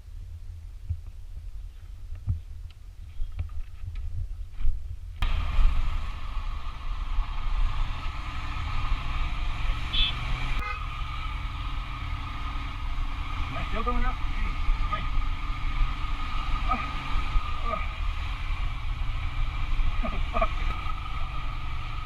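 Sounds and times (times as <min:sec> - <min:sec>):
motorbike engine and road noise: 0:00.0 - 0:22.0
horn toot: 0:09.9 - 0:10.9.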